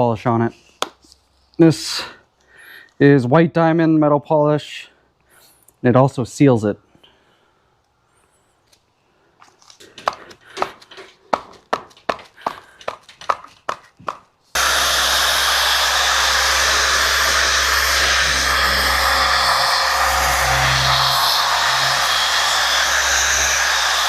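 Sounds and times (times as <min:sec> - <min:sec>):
orbital sander running: 0:14.6 - 0:24.0.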